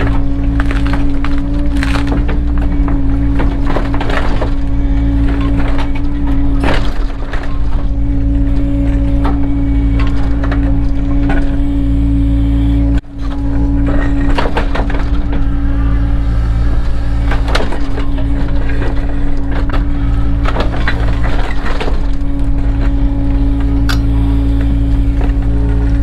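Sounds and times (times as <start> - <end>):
stones and gravel clattering: 0.0 - 4.6
excavator diesel engine droning: 0.0 - 26.0.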